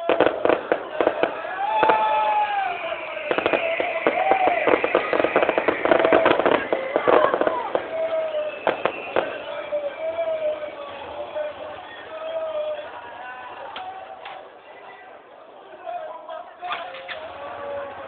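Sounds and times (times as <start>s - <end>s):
bonfire crackling and popping: 0.0s - 12.4s
distant voices: 0.0s - 18.0s.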